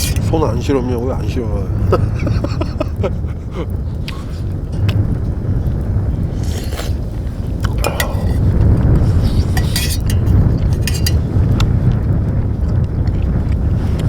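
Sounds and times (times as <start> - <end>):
spoon clinking on metal cookware: 0.0 - 0.3, 7.8 - 8.5, 9.2 - 11.3
wind buffeting microphone: 0.0 - 14.0.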